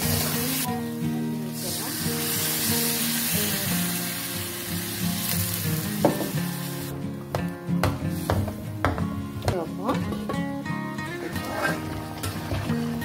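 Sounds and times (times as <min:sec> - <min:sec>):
curry sizzling in a wok: 0:00.0 - 0:07.0
ladle stirring: 0:11.1 - 0:13.0.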